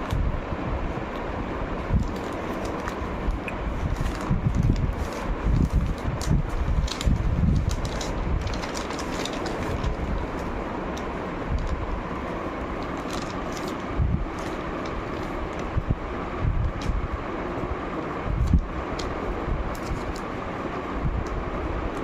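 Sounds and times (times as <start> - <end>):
steady low rumble: 0.0 - 22.0
food wrapping crinkling: 2.0 - 11.9, 12.8 - 15.7.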